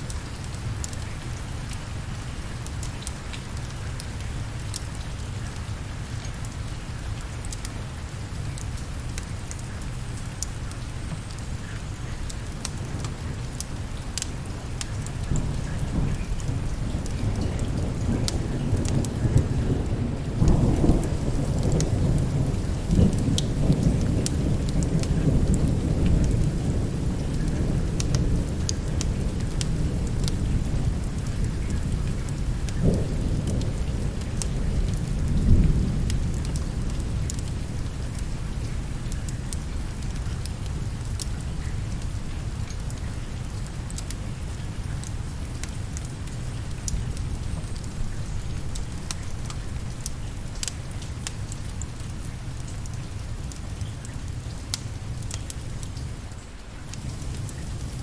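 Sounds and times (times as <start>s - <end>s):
steady rain: 0.0s - 58.0s
deep roll of thunder: 15.4s - 31.2s, 57.0s - 58.0s.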